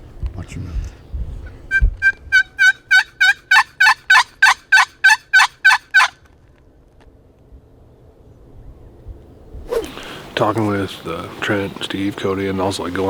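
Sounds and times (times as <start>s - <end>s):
turkey hen yelps: 1.7s - 6.2s.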